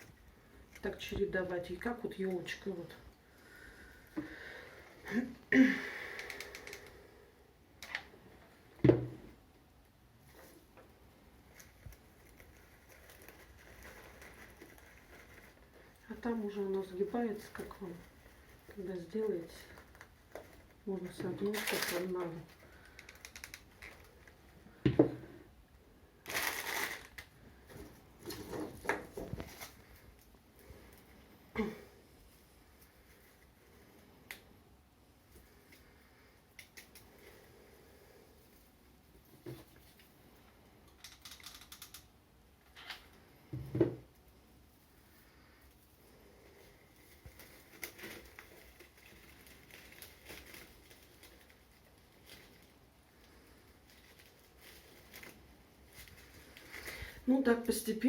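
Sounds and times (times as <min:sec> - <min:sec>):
artificial pine branches rustling: 0:00.0 - 0:40.8, 0:43.0 - 0:58.0.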